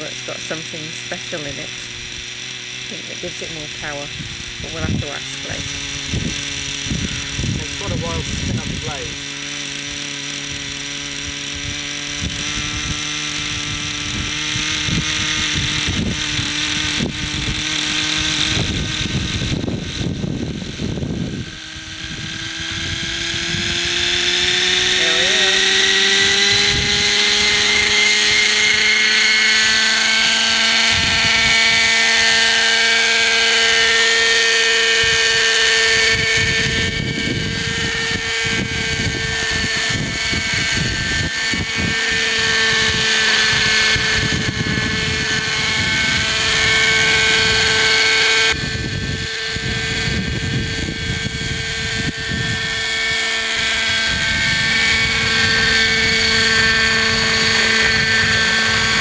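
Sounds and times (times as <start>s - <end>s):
model helicopter engine whine: 0.0s - 59.0s
wind rumble on microphone: 0.0s - 59.0s.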